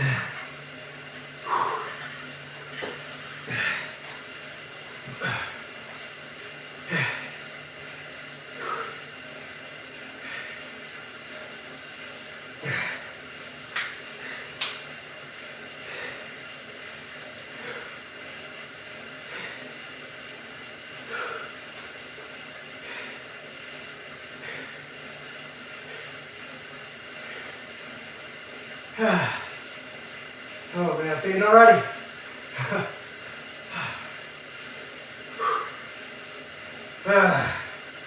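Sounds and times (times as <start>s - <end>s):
man breathing hard: 0.0s - 0.6s, 1.3s - 6.1s, 6.8s - 7.5s, 8.5s - 9.3s, 12.6s - 13.4s, 15.8s - 16.6s, 17.4s - 20.0s, 20.8s - 22.0s, 22.7s - 23.6s, 29.0s - 29.7s, 33.6s - 34.3s, 35.3s - 36.0s, 37.0s - 37.9s
steady hiss: 0.0s - 38.0s.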